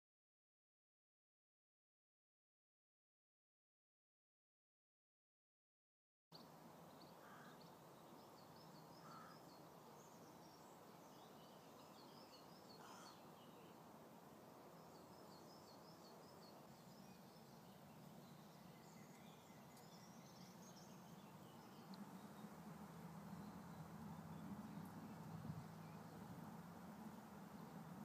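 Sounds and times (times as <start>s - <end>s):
distant birds chirping: 6.4s - 28.0s
brief lower bird calls: 9.0s - 9.4s.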